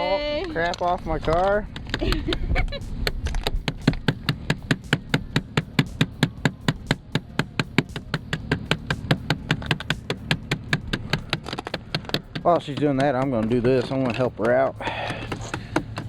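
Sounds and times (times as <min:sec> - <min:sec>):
tool chipping at ice: 0:03.4 - 0:16.0.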